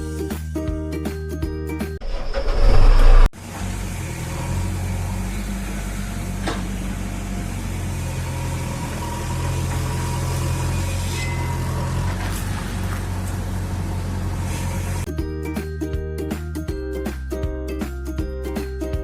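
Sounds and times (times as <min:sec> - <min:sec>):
background music: 0:00.0 - 0:02.0, 0:15.1 - 0:19.0
loud burst of noise: 0:02.0 - 0:03.3
tractor engine running: 0:02.0 - 0:15.1.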